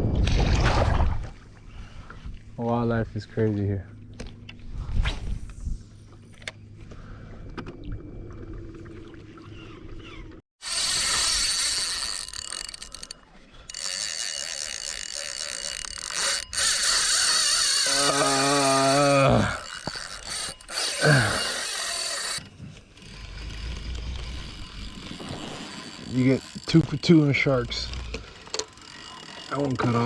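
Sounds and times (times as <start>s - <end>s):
fishing reel drag buzzing: 10.6s - 30.0s
man groaning: 17.8s - 19.7s, 21.0s - 21.6s.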